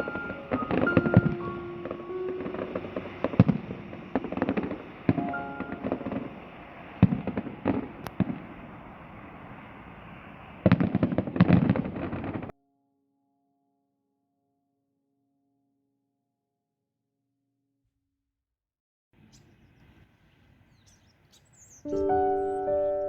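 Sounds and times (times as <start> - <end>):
fireworks bangs and crackles: 0.0 - 12.5.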